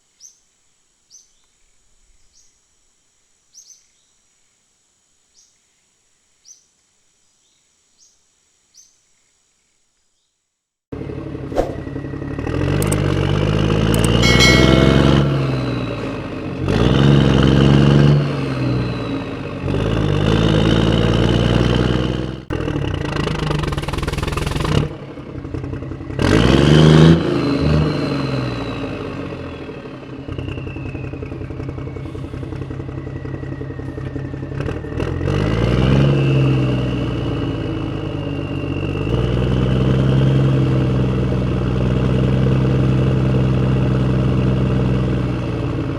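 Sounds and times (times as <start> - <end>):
high whine: 14.0 - 16.6
engine revving: 16.7 - 30.0, 31.2 - 45.3.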